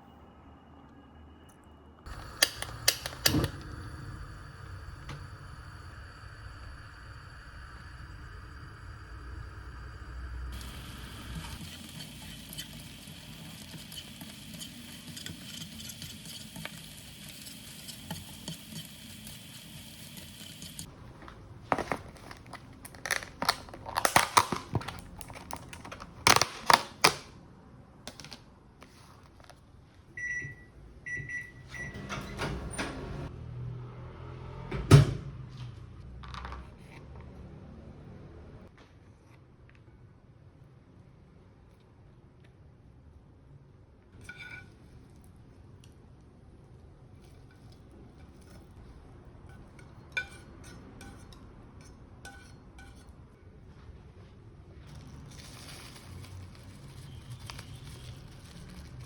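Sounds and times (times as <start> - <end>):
steady hum: 2.1 - 12.4.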